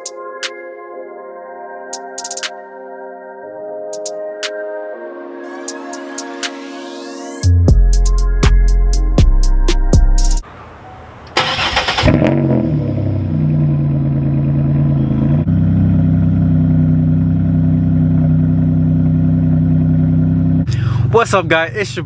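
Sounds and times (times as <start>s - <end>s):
car engine idling: 10.5s - 22.0s
car starter cranking: 11.0s - 12.8s.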